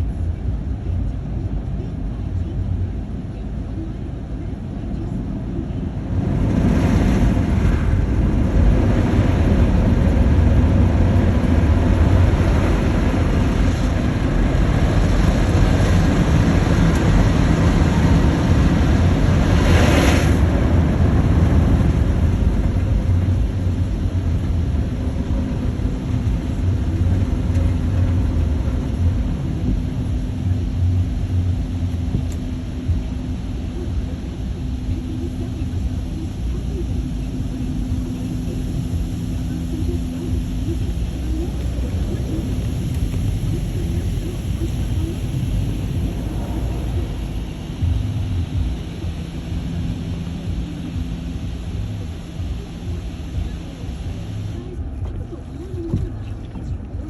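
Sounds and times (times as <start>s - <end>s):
car wash low rumble: 0.0s - 57.0s.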